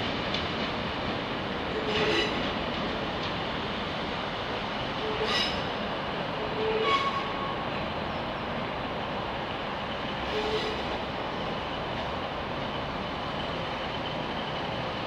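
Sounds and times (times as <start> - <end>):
train rumbling slowly: 0.0 - 15.0
high wheel squeals: 5.1 - 5.6.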